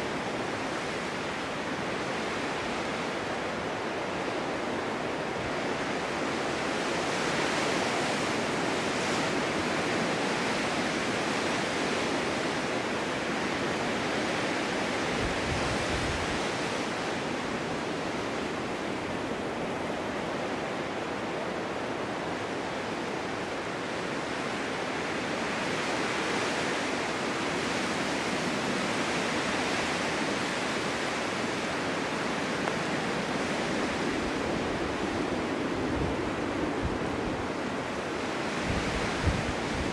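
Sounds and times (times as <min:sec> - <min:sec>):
strong wind gusting: 0:27.2 - 0:39.9.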